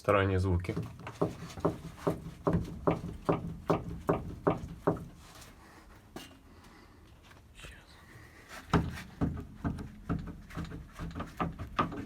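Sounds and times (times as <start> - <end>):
steering link knocking: 0.7 - 5.2, 8.8 - 12.0.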